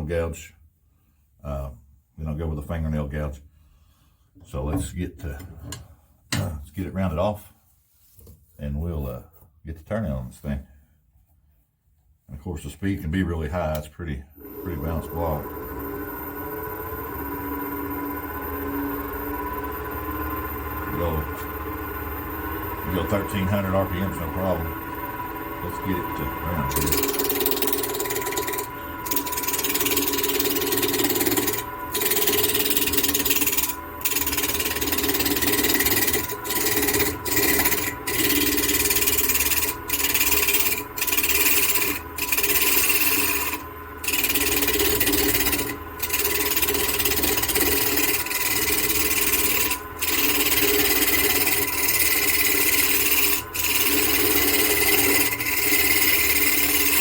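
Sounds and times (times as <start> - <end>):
wood lathe motor hum: 14.4 - 57.0
gouge rasping on wood: 26.7 - 57.0.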